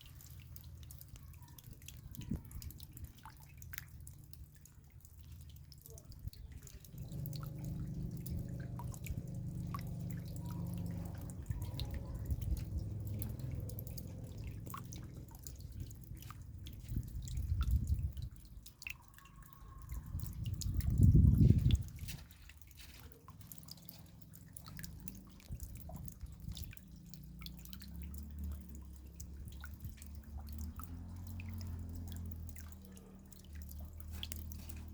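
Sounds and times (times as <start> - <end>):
raindrops dripping: 0.0 - 34.9
low rumble with hum: 5.9 - 18.5, 20.0 - 34.1.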